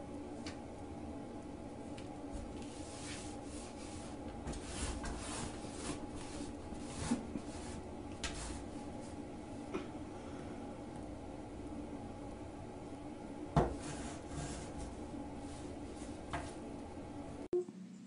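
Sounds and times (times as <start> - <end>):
rug scraping on tile floor: 2.3 - 9.2, 13.6 - 16.6.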